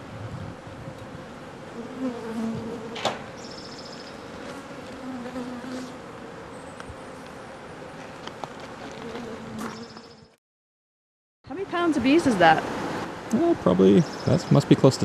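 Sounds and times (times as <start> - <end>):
bees buzzing: 0.0 - 10.4.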